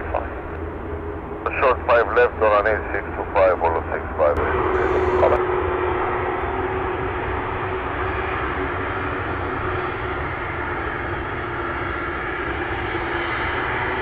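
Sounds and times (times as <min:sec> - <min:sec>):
jet aircraft rushing noise: 0:04.0 - 0:09.4.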